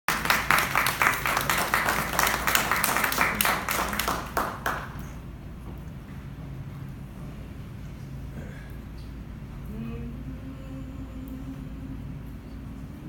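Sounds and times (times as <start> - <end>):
audience applauding: 0.1 - 5.2
low room hum: 0.1 - 13.0.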